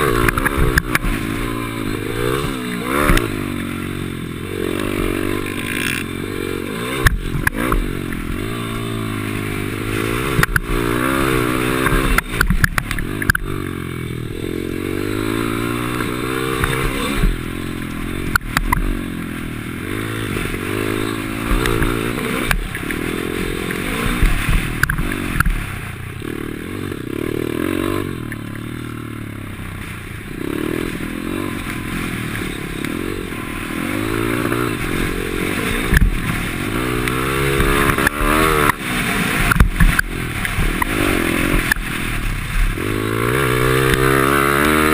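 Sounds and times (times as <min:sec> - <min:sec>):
bike knocks and rattles: 0:00.0 - 0:03.6, 0:06.9 - 0:08.6, 0:10.1 - 0:13.9, 0:15.5 - 0:19.2, 0:39.4 - 0:42.8
small motorbike engine revving: 0:00.0 - 0:44.9.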